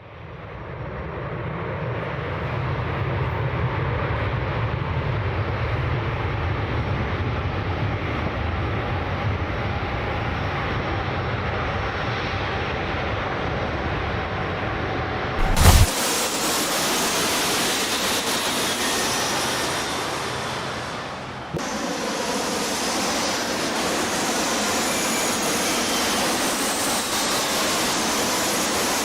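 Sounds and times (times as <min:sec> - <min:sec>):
jet engine roar: 0:15.4 - 0:29.0.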